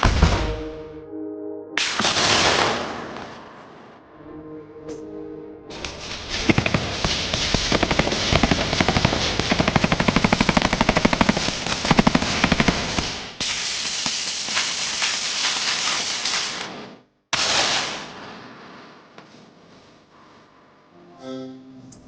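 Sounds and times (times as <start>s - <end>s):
automatic gunfire: 1.8s - 3.4s, 6.3s - 16.8s, 17.4s - 18.0s
hissing: 5.7s - 16.8s.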